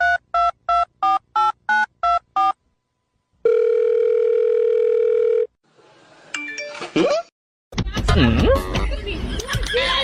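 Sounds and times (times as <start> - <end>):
long steady dial tone: 3.4 - 5.5.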